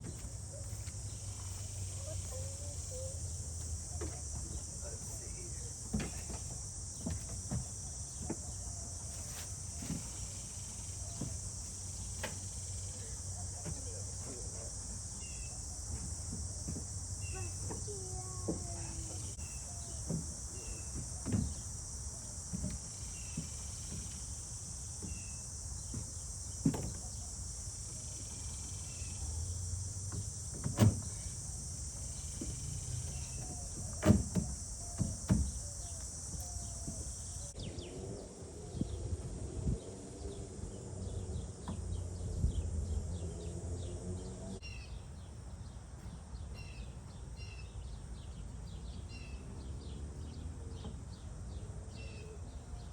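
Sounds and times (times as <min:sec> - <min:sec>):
birds chirping: 0:00.0 - 0:52.9
insects buzzing: 0:00.0 - 0:52.9
sharp knocks: 0:32.3 - 0:35.7.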